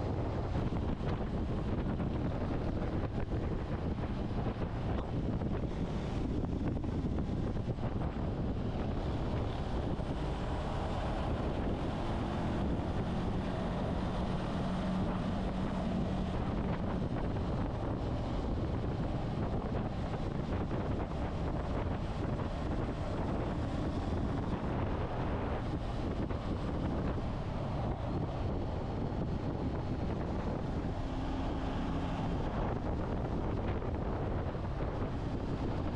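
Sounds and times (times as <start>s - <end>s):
motorcycle engine hum: 0.0s - 35.9s
wind rushing over microphone: 0.0s - 35.9s.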